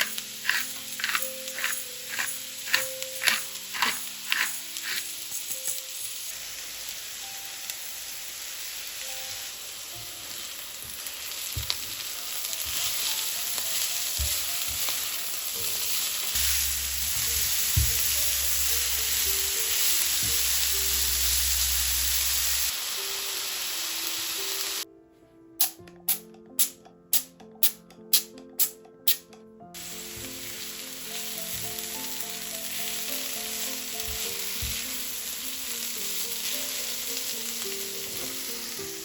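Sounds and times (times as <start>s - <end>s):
utensil tapping pan: 0.0s - 5.8s
food sizzling in oil: 0.0s - 24.8s, 29.8s - 39.0s
soft background music: 0.0s - 39.0s.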